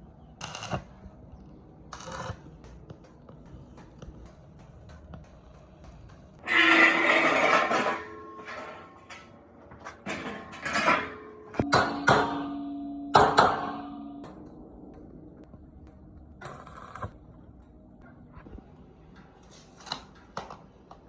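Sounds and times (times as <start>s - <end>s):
metal scraping clatter: 6.4s - 11.7s
metal clanks with ringing: 6.5s - 9.3s, 10.0s - 15.1s.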